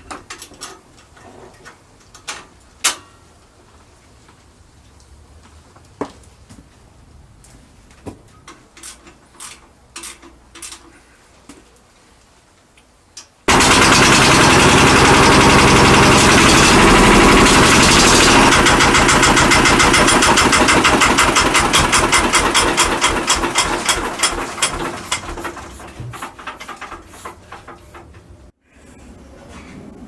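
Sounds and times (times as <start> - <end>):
diesel engine running: 13.5 - 25.8.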